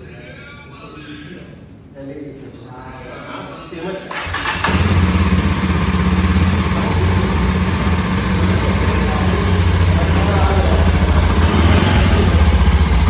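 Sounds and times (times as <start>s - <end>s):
motorcycle engine idling: 4.2s - 13.0s.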